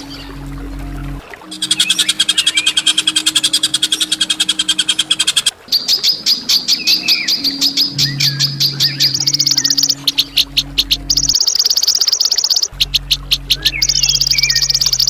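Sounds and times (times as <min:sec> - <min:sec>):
songbird harsh rattling calls: 0:01.5 - 0:15.0.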